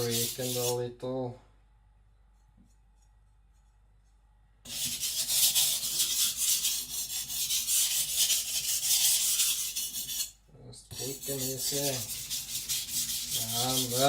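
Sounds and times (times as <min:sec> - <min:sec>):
knife scraping on whetstone: 0:00.0 - 0:00.7, 0:04.7 - 0:10.3, 0:11.0 - 0:14.0.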